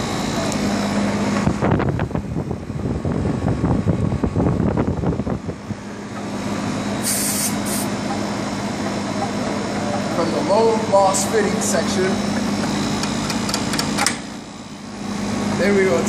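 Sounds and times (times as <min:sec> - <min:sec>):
condensing unit humming: 0:00.0 - 0:16.0
refrigerant hissing: 0:06.9 - 0:08.0.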